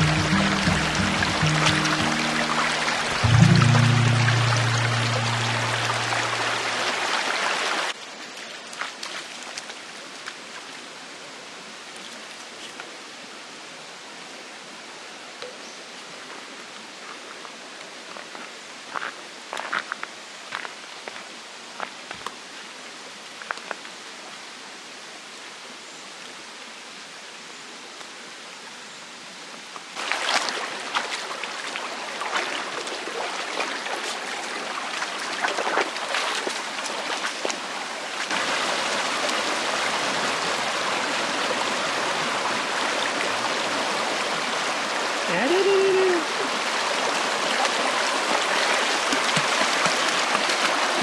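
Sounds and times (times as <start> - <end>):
water splashes: 0.0 - 11.2, 30.0 - 51.0
stream running over rocks: 0.0 - 51.0.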